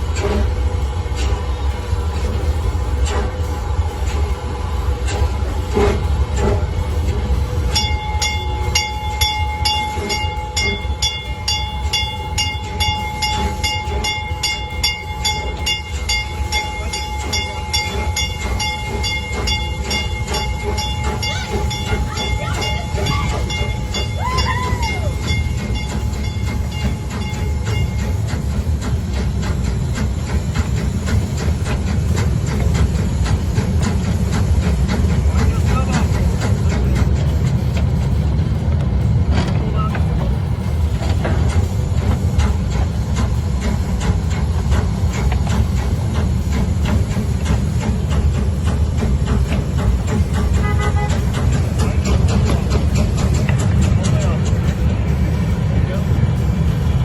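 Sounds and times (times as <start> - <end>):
train rumbling: 0.0 - 57.0
high repeating ringing: 7.7 - 28.6.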